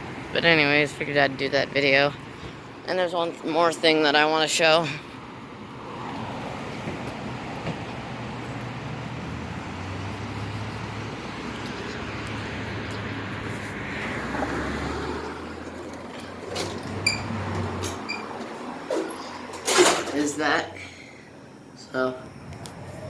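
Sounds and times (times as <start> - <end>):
distant traffic: 0.0 - 23.0
steady low hum: 15.3 - 23.0.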